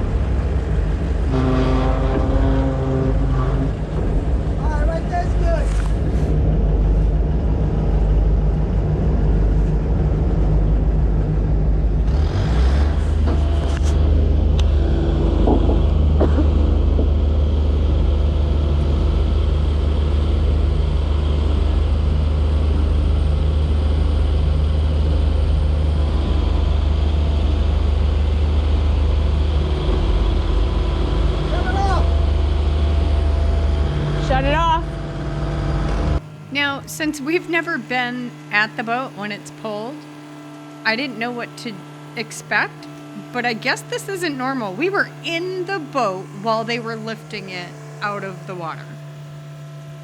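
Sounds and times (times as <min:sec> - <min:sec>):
motorboat engine idling: 0:00.0 - 0:50.0
knocks and clicks: 0:15.3 - 0:17.4.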